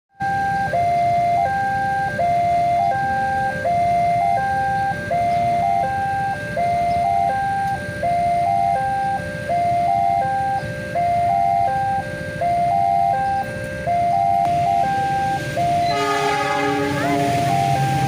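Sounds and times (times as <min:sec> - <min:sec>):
level crossing warning tones: 0:00.2 - 0:18.0.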